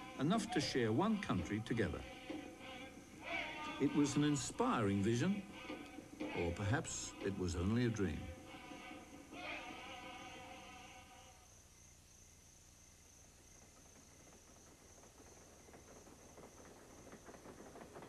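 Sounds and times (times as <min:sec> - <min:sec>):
train wheels clattering on rails: 0:00.0 - 0:09.3, 0:13.4 - 0:18.0.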